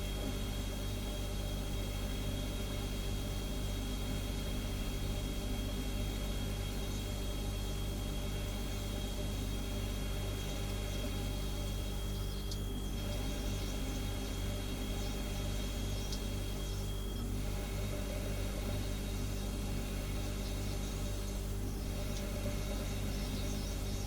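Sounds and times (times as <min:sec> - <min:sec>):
refrigerator humming: 0:00.0 - 0:24.0.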